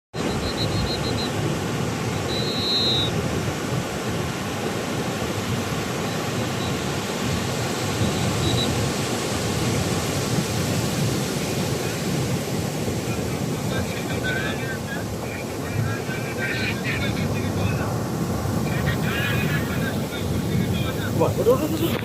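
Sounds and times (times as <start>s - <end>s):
waves breaking on a beach: 0.1s - 22.0s
faint high chirp: 0.2s - 1.4s, 2.1s - 3.1s, 6.1s - 6.8s, 8.1s - 8.8s.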